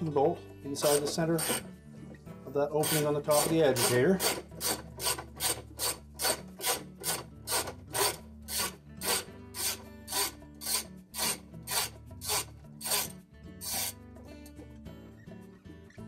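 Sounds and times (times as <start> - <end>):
ratchet pawl clicking: 2.8 - 13.9.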